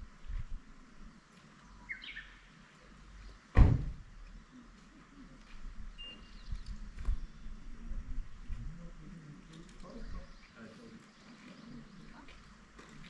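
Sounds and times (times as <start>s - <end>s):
loud thump: 3.5s - 4.1s
faint short chirps: 6.0s - 6.4s.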